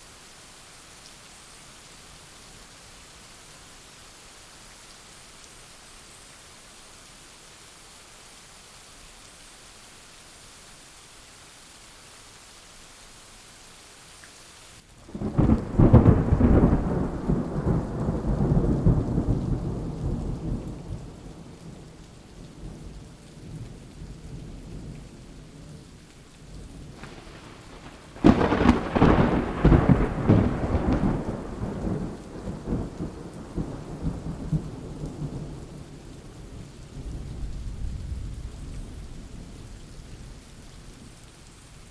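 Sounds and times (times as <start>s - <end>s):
steady rain: 0.0s - 41.9s
thunder rumbling: 15.1s - 22.9s, 26.8s - 40.3s.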